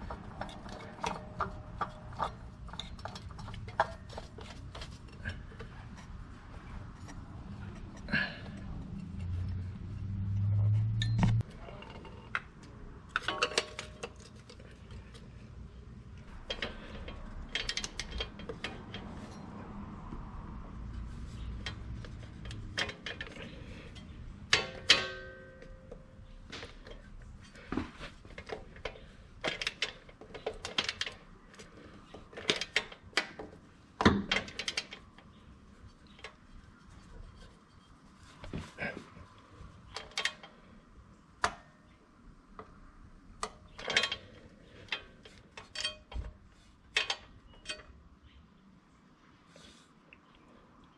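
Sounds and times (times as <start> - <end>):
metal tools clinking and clattering: 13.1 - 15.2, 16.3 - 19.6, 21.3 - 33.5, 43.7 - 48.0.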